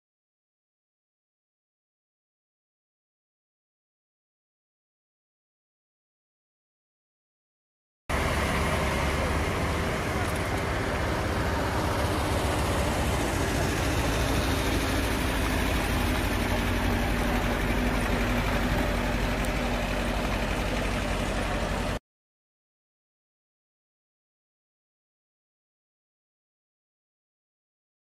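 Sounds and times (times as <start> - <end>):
car engine and road noise: 8.1 - 22.0.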